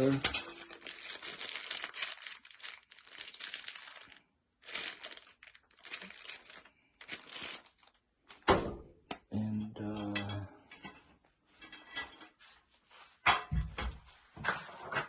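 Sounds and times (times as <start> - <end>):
packet rustling: 0.0 - 8.0.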